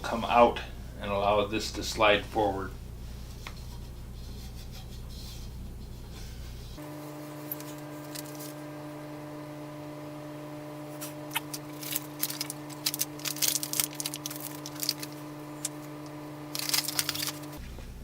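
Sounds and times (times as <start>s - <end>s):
low electrical hum: 0.0s - 18.0s
parts clicking and rustling: 11.3s - 17.6s.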